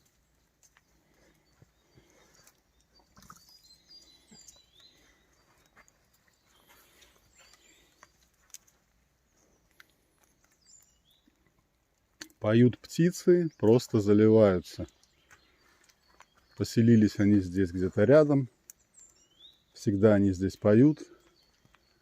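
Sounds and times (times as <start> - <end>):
faint bird chirps: 0.0 - 11.6, 12.2 - 22.0
soft clicks and rustles: 0.0 - 12.4.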